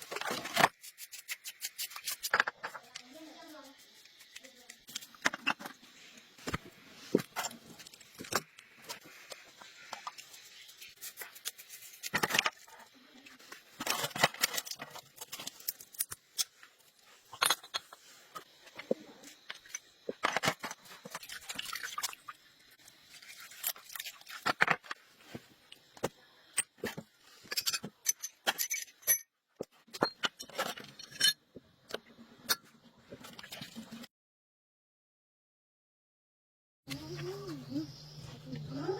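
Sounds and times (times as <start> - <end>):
metal parts and tools clinking: 13.8 - 18.4, 26.6 - 29.3, 29.9 - 31.4.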